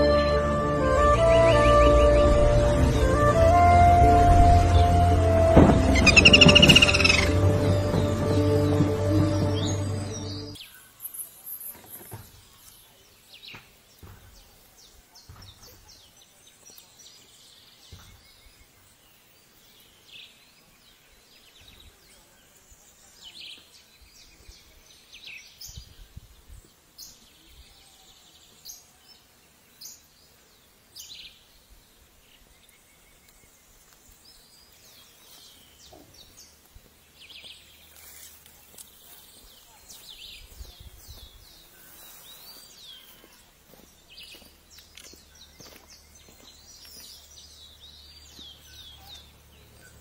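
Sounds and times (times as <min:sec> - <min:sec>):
high-pitched bird chirps: 0:05.9 - 0:07.7.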